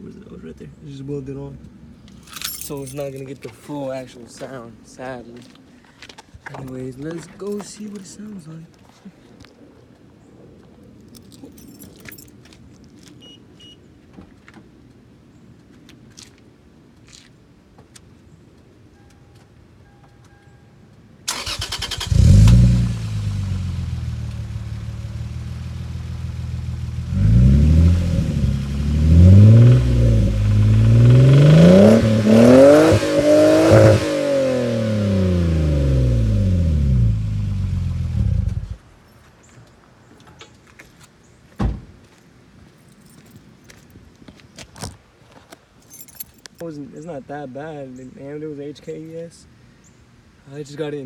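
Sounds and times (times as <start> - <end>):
car engine starting and revving: 21.3 - 38.8
thump: 41.6 - 42.0.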